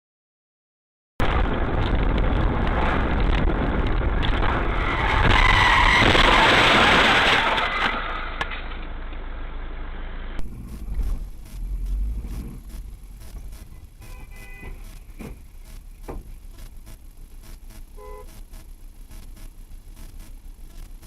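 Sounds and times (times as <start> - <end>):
car road and engine noise: 1.2 - 21.0.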